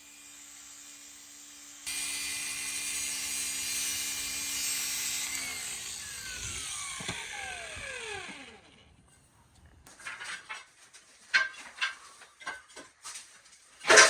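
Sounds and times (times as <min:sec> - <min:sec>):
angle grinder grinding tile: 0:00.3 - 0:08.8.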